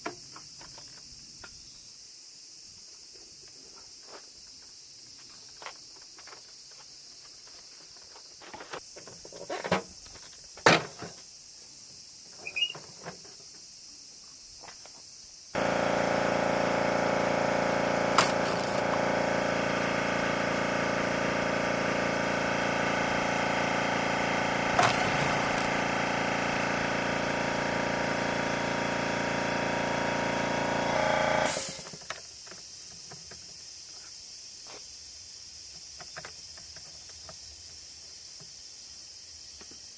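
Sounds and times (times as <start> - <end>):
motor running: 15.6 - 31.9.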